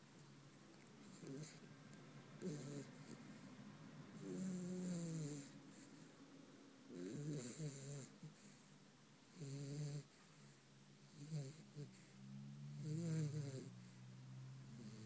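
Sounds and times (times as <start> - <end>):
puppy snoring: 1.0 - 1.7, 2.4 - 3.5, 4.1 - 6.1, 6.9 - 8.7, 9.3 - 14.0, 14.7 - 15.0.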